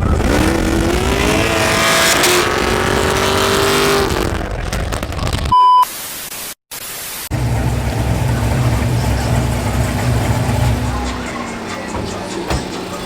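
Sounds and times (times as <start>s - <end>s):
car engine accelerating: 0.0s - 4.5s, 7.3s - 13.0s
loud electronic beep: 5.5s - 5.9s
low engine drone: 7.3s - 13.0s.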